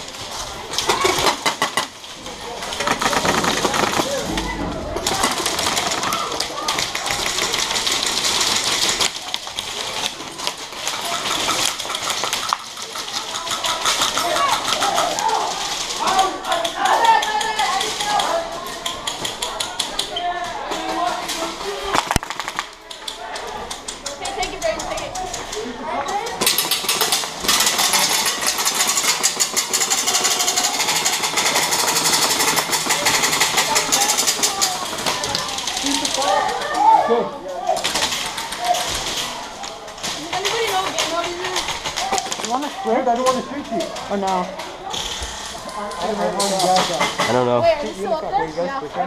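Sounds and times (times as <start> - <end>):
airsoft guns firing in bursts: 0.7 - 16.2, 26.4 - 36.5.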